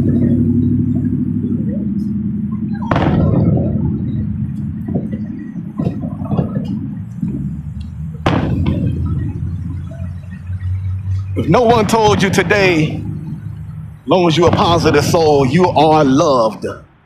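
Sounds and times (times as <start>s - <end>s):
low rumble: 0.0s - 17.0s
loud fireworks bangs: 2.7s - 10.4s, 11.1s - 16.2s.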